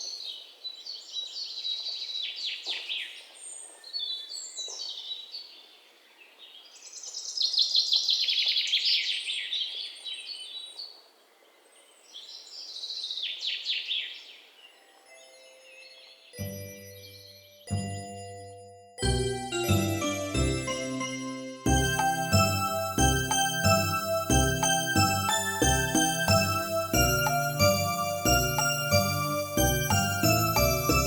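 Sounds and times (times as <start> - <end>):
songbirds chirping and trilling: 0.0 - 17.6.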